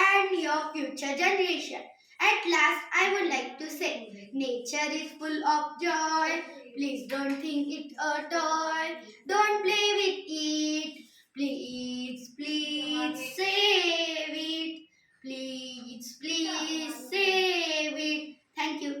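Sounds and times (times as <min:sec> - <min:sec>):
child singing: 0:00.0 - 0:19.0.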